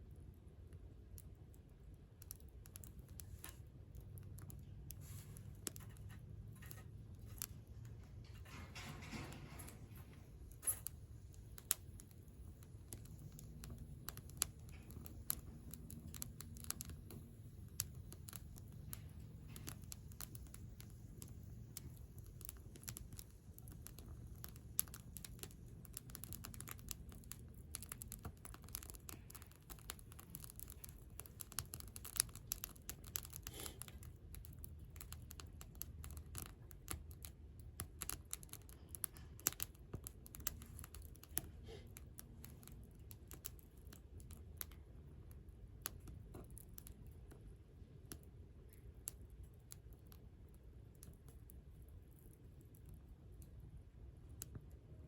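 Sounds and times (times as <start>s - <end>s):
low steady rumble: 0.0s - 55.0s
campfire snaps and pops: 9.0s - 51.4s.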